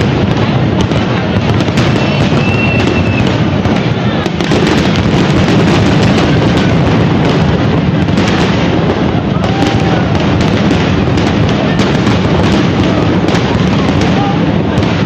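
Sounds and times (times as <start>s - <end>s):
fireworks bursts and crackling: 0.0s - 15.0s
firework whistle: 1.5s - 6.6s.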